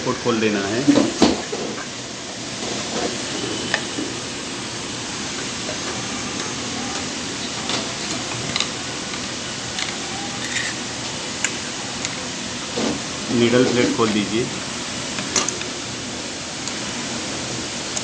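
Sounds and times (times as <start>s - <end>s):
steady background hiss: 0.0s - 18.0s
small metal parts clicking: 8.0s - 11.6s.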